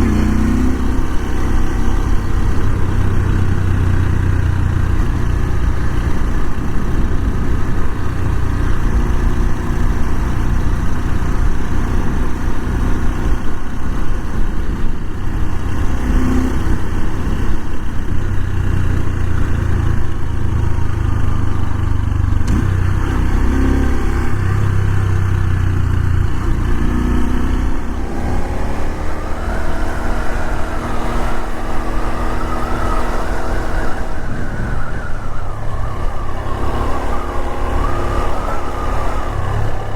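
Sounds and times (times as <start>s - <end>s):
motorcycle engine running: 0.0s - 39.9s
siren wailing: 28.0s - 39.9s.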